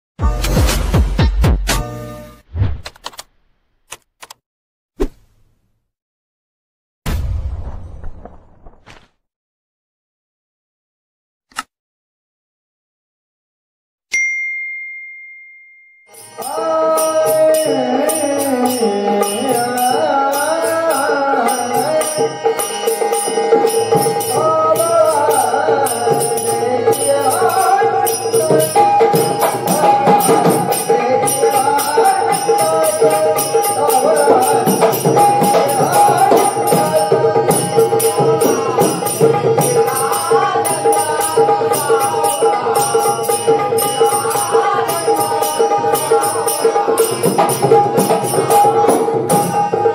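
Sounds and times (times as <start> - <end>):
ringing stroke: 14.1 - 16.6.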